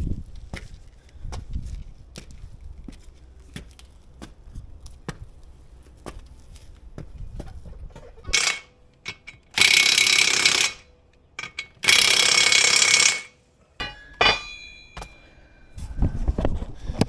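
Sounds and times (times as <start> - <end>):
metal clinking: 8.3 - 10.8, 11.4 - 15.4
impact wrench hammering: 8.3 - 15.2.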